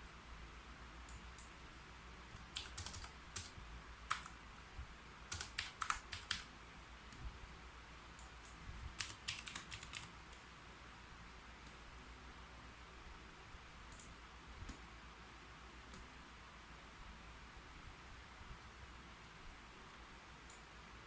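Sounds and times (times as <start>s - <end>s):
keyboard typing clicks: 2.3s - 4.4s, 5.3s - 6.5s, 8.2s - 10.4s.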